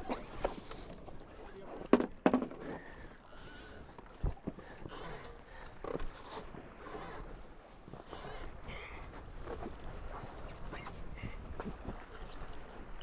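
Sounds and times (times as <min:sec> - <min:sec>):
sharp knocks on a boat: 0:01.9 - 0:02.6.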